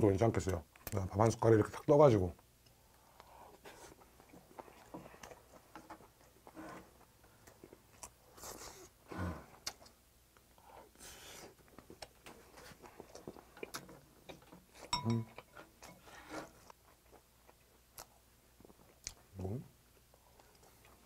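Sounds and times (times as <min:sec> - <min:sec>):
man chewing: 0:02.6 - 0:21.0
low throat sound: 0:09.1 - 0:09.7.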